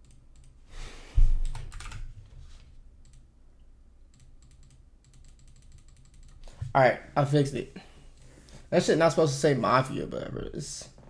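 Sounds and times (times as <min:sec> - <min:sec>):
computer keyboard keys clicking: 0:00.0 - 0:00.6, 0:01.4 - 0:02.1, 0:03.0 - 0:03.2, 0:04.1 - 0:06.4
low thump: 0:01.2 - 0:01.6.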